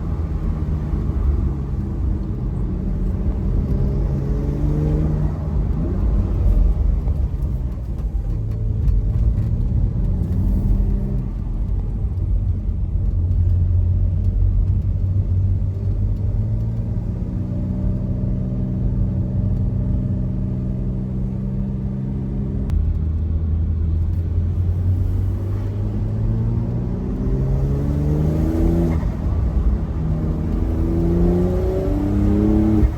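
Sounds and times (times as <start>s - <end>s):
car engine revving: 0.0s - 11.7s, 24.3s - 32.9s.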